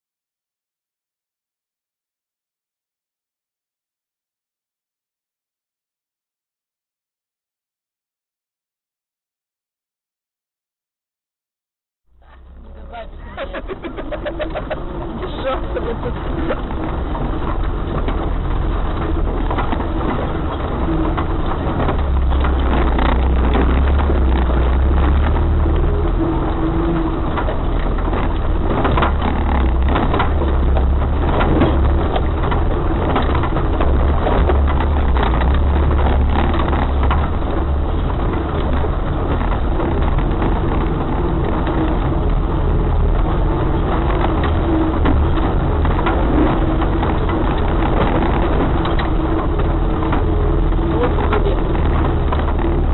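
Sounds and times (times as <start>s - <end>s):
vehicle engine drone: 12.1s - 52.9s
knocks and rattles: 12.2s - 52.9s.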